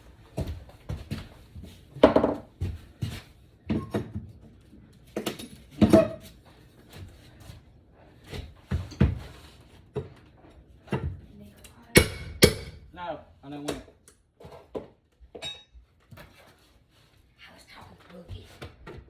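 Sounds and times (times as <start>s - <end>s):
wooden flooring knocks and thuds: 1.9s - 3.1s.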